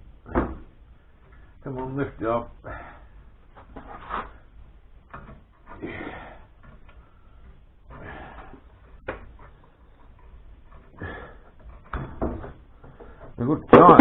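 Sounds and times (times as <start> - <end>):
metal clicks and knocks: 5.0 - 5.8.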